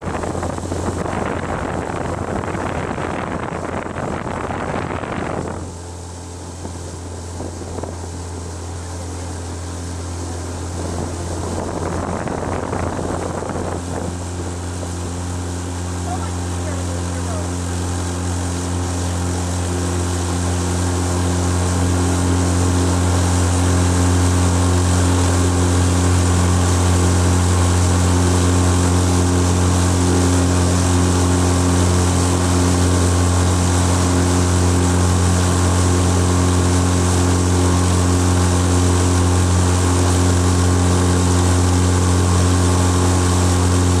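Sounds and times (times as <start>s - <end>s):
motorboat engine running: 0.0s - 44.0s.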